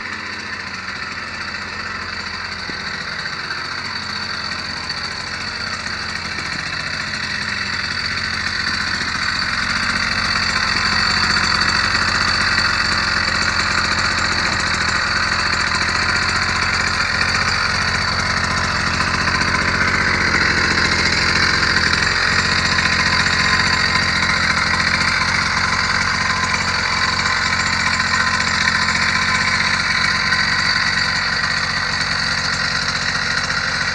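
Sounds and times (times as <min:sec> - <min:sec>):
small engine running: 0:00.0 - 0:33.9.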